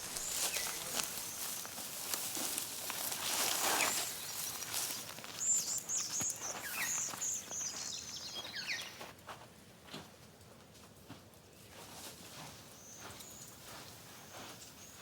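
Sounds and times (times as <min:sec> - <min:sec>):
bird chirping: 0:00.0 - 0:01.8, 0:03.4 - 0:09.1
rustling in dry vegetation: 0:00.0 - 0:09.1.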